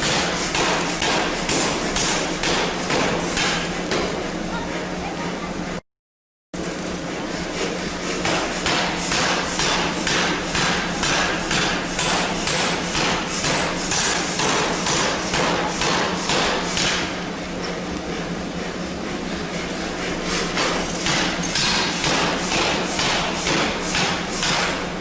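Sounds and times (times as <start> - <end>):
forging hammer striking steel: 0.0 - 4.2, 8.2 - 17.2, 20.6 - 24.8.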